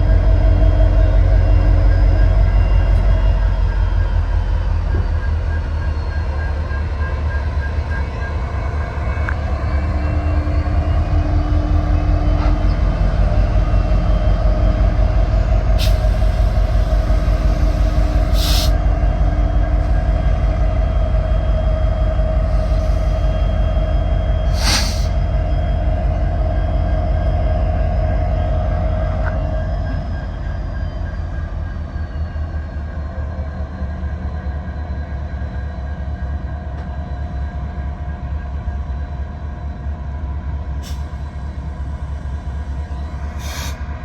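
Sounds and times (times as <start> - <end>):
locomotive engine rumble: 0.0 - 33.3
high hisses: 18.4 - 18.8, 24.5 - 25.2, 43.4 - 43.8.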